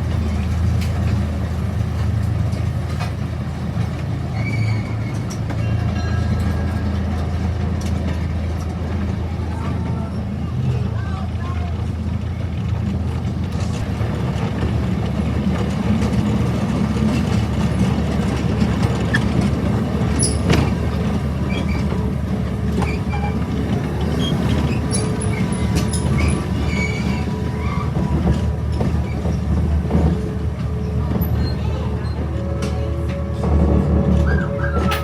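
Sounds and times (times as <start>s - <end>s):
ride train rumbling on track: 0.0s - 35.0s
faint squeaks and clicks: 4.3s - 6.8s, 18.9s - 22.0s, 22.8s - 29.6s.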